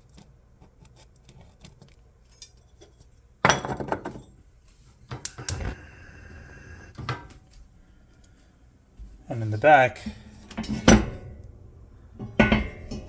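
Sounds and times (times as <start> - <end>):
metal burner parts clinking: 12.2 - 13.0.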